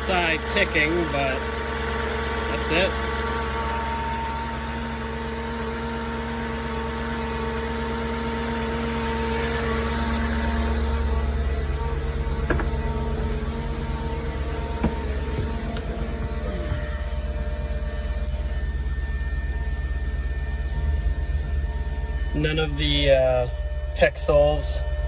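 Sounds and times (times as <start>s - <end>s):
car engine idling: 0.0s - 24.5s
cooling fan running: 0.0s - 25.0s.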